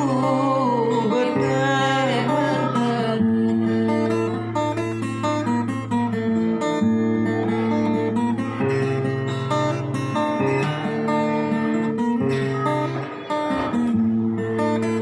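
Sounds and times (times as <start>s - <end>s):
acoustic guitar folk melody: 0.0s - 15.0s.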